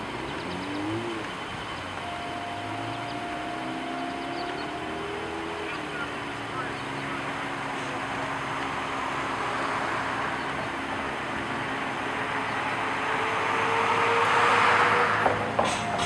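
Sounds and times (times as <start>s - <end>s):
faint rising tone: 0.0s - 8.1s
vehicle engine running: 0.0s - 16.0s.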